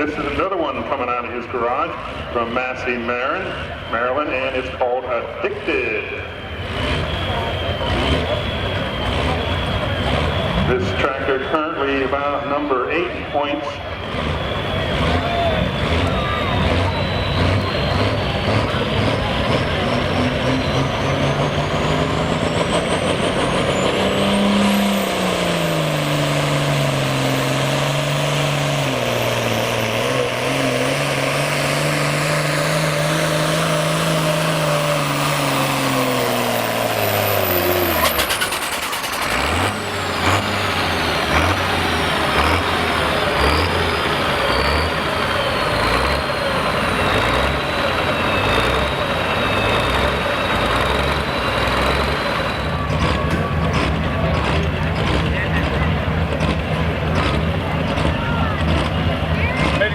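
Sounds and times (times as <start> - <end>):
tractor diesel engine: 0.0 - 59.9
high turbo whistle: 6.0 - 39.2.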